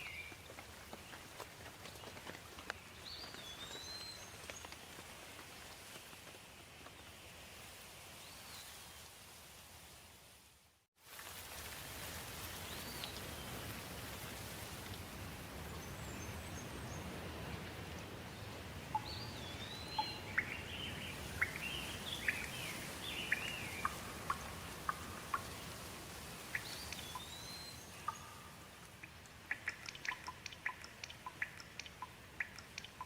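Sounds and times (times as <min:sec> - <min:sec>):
steady rain: 0:08.8 - 0:33.0
birds chirping: 0:18.2 - 0:33.0
sharp ticks: 0:28.9 - 0:33.0.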